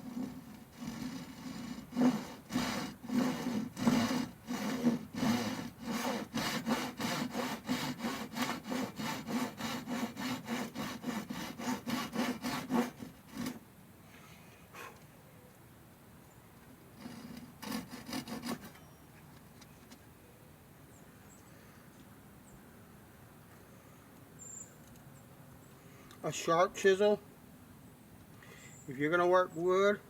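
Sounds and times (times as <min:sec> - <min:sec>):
hand saw cutting wood: 0:00.0 - 0:13.6, 0:17.0 - 0:18.8.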